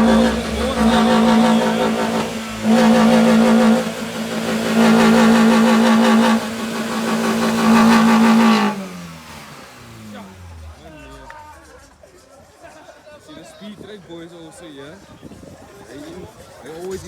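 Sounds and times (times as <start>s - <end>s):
car engine revving high: 0.0s - 12.0s.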